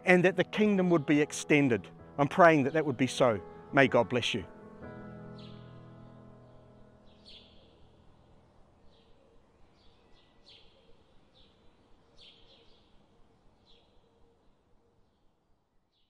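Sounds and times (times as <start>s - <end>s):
soft background music: 0.0s - 9.1s
bird chirps: 7.0s - 8.0s, 8.8s - 14.4s.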